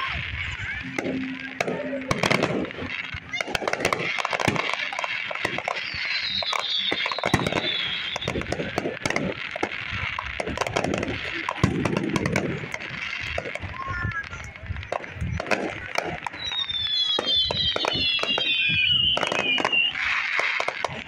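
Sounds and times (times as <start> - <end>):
fireworks crackling: 0.0 - 21.0
fireworks shells bursting with bangs: 0.0 - 21.0.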